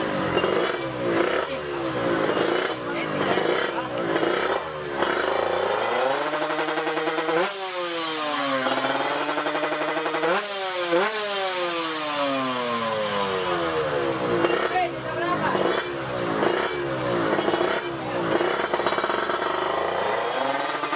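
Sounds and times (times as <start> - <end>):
motorcycle engine at full throttle: 0.0 - 20.9.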